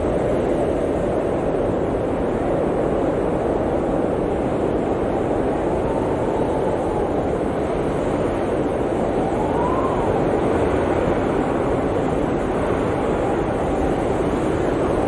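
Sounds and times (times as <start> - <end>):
blizzard wind howling: 0.0 - 15.0.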